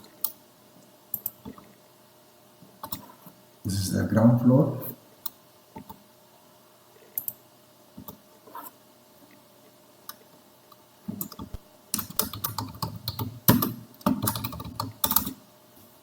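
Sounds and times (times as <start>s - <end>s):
computer keyboard typing: 11.1s - 15.4s.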